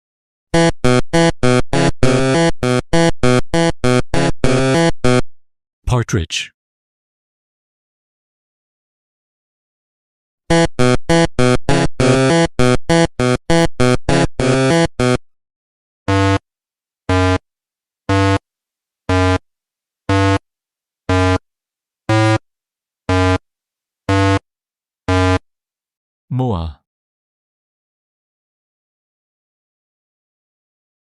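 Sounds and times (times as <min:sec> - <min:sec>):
electronic synthesizer notes: 0:00.6 - 0:05.3, 0:10.5 - 0:15.2, 0:19.1 - 0:19.4.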